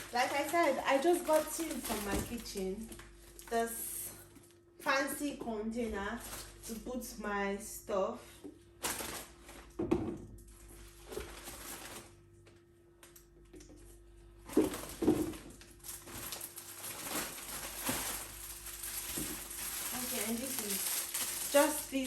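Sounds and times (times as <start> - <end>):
plastic packaging crinkling: 0.0 - 4.6, 8.8 - 9.7, 10.6 - 12.3, 14.5 - 22.0.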